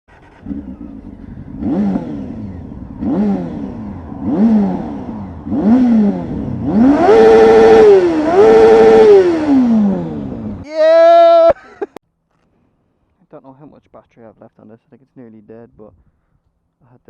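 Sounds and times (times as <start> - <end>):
motorcycle engine revving: 0.1 - 10.7.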